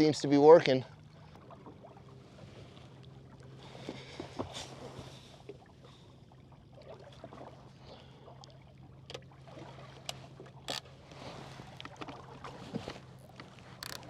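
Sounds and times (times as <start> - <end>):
boat motor running: 8.8 - 14.0.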